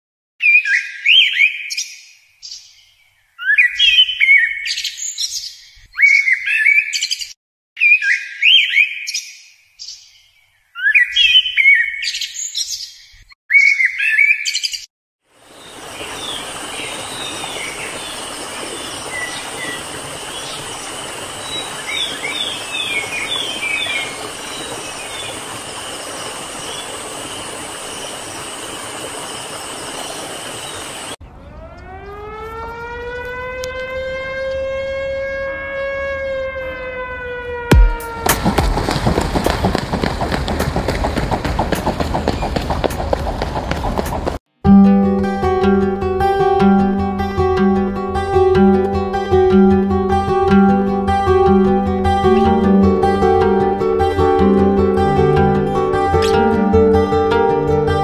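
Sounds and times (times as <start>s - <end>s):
background hiss: 15.4s - 31.2s
songbird warbling: 15.5s - 31.1s, 56.1s - 56.6s.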